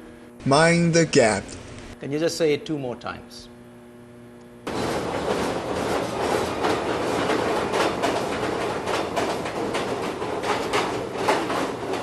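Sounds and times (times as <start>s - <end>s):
train rumbling along track: 4.7s - 12.0s
wheel clacks over rail joints: 4.7s - 12.0s.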